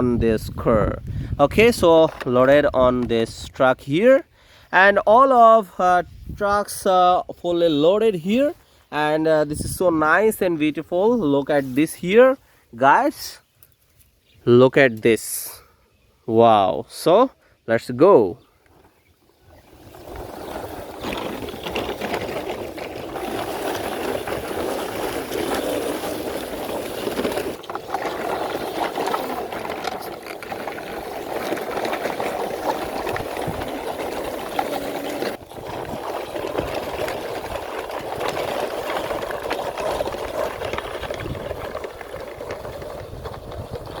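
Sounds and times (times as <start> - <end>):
toy truck rolling and rattling: 19.9 - 44.0.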